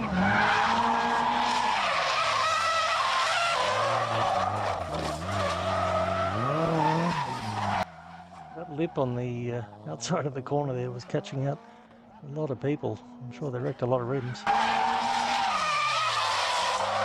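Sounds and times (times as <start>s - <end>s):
tyres screeching: 0.0s - 10.0s, 14.1s - 17.0s
car engine revving: 0.0s - 17.0s.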